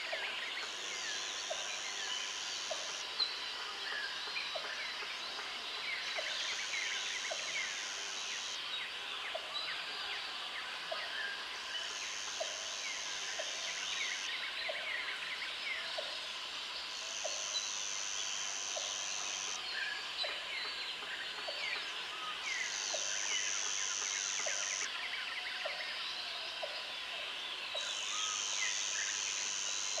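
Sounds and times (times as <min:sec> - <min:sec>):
high insect buzz: 0:16.8 - 0:19.6, 0:22.5 - 0:24.9, 0:27.9 - 0:30.0.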